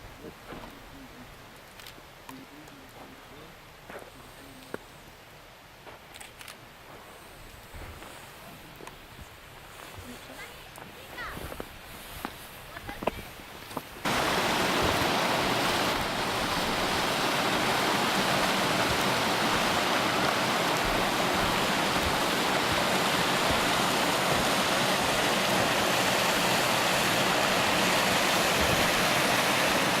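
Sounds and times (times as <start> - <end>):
creek rushing over rocks: 14.0 - 30.0.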